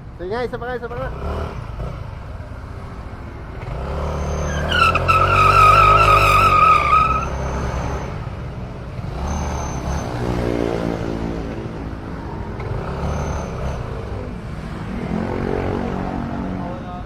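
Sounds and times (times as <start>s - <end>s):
motorcycle engine revving: 0.8s - 16.8s
tyre burnout: 3.6s - 8.3s.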